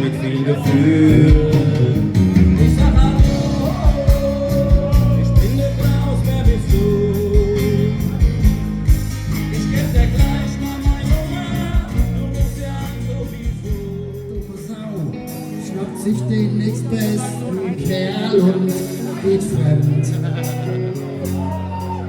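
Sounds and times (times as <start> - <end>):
live pop-rock band: 0.0 - 22.0
person singing: 0.0 - 22.0
drum beat: 1.1 - 14.7.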